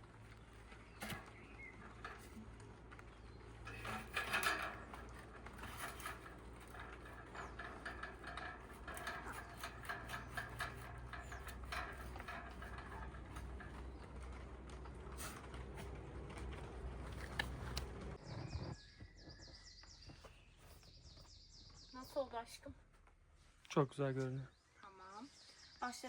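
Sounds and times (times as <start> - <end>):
camping gear clicks and rustles: 0.0 - 18.7.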